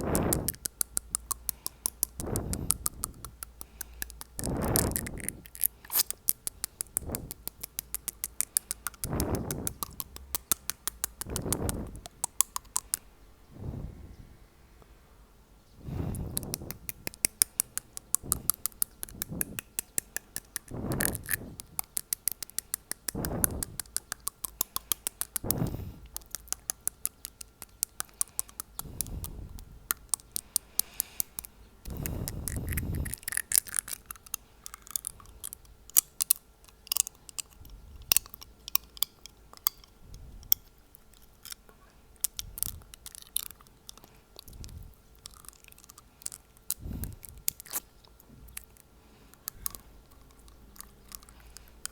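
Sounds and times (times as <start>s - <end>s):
teeth tapping clicks: 0.0s - 13.1s, 16.1s - 41.6s, 42.2s - 51.9s
blowing into microphone: 0.0s - 14.6s, 15.8s - 19.7s, 20.6s - 21.8s, 23.0s - 24.1s, 25.3s - 26.2s, 28.8s - 29.9s, 30.7s - 33.3s, 46.8s - 47.5s.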